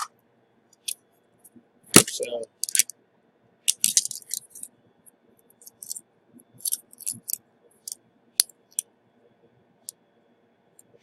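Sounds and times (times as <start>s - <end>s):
small tools clicking and scraping: 2.5s - 2.9s, 5.6s - 6.0s, 6.6s - 8.0s.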